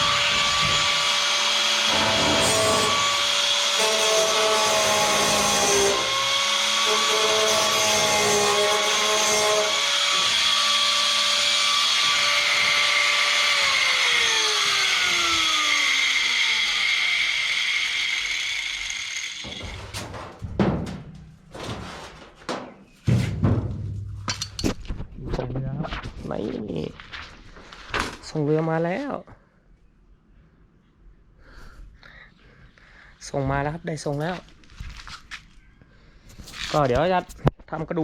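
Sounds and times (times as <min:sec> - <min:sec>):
electric power tool whining: 0:00.0 - 0:20.0.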